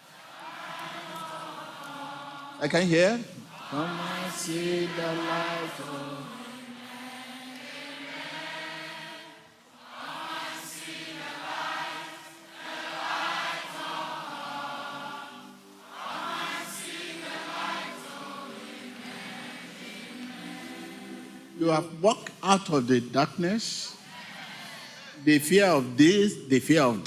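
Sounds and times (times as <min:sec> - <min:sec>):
congregation singing: 0:00.0 - 0:27.0.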